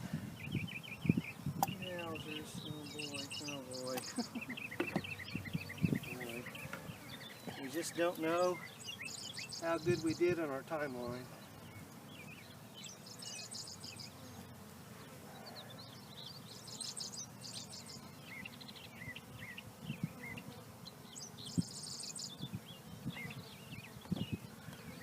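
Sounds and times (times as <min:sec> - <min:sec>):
bees humming: 0:00.0 - 0:25.0
songbird trilling: 0:00.4 - 0:10.8.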